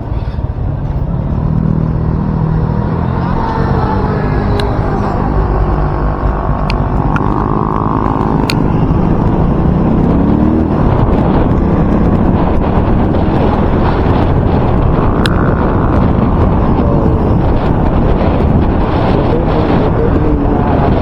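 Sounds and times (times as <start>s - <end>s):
vehicle engine running: 0.0s - 21.0s
wind buffeting microphone: 0.0s - 21.0s
sharp ticks: 3.4s - 16.6s.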